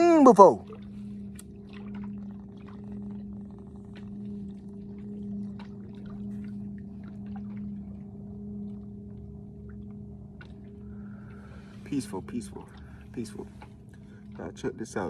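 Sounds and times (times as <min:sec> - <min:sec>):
low-pitched hum: 0:00.0 - 0:15.0
faint clicks: 0:01.3 - 0:01.7.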